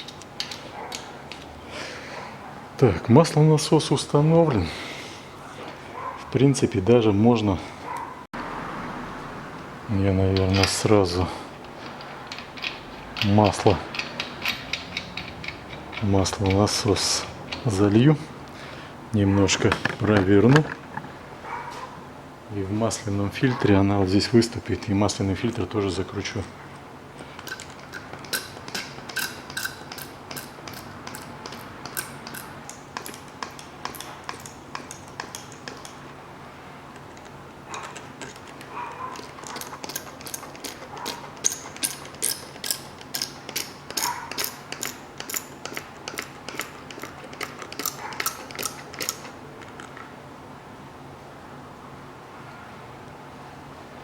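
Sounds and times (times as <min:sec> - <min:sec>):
ratchet wrench clicking: 0:11.9 - 0:16.8, 0:27.4 - 0:36.0, 0:39.2 - 0:40.8, 0:41.4 - 0:49.3.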